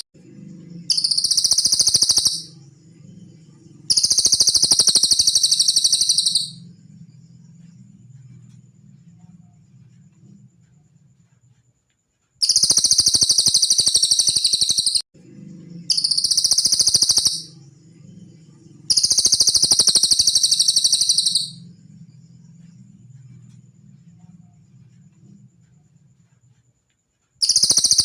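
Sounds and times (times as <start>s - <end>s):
bird singing rapid trills: 0.0s - 7.9s, 12.4s - 23.4s, 27.4s - 28.0s.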